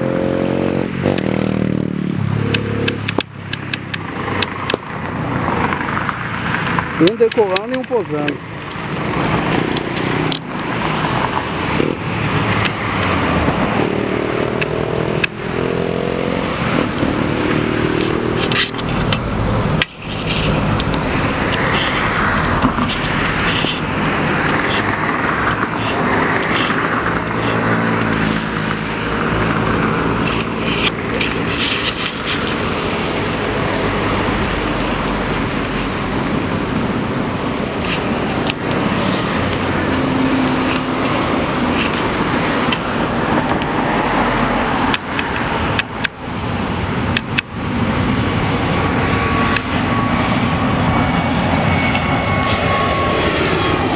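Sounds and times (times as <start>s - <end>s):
jet engines roaring on takeoff: 0.0s - 53.9s.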